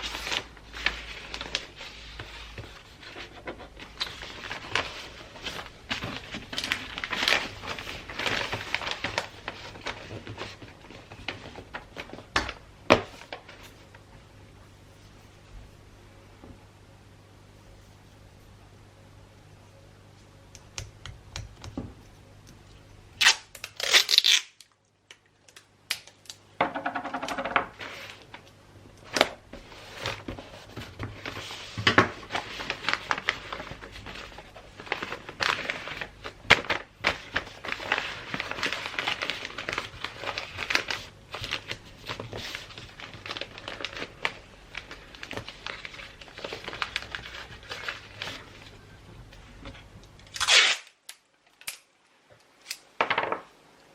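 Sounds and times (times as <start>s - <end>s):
wrapping paper crinkling: 0.0s - 14.1s, 23.2s - 24.8s, 27.8s - 49.4s.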